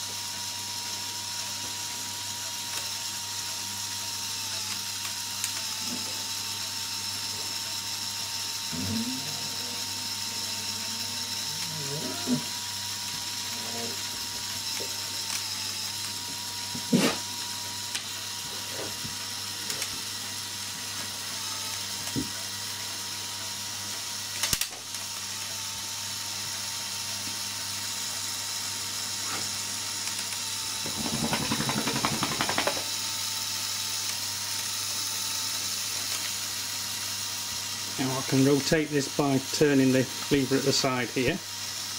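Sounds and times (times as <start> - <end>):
toy electric motor and gears running: 0.0 - 41.9
rapid gear ratcheting: 30.1 - 37.8.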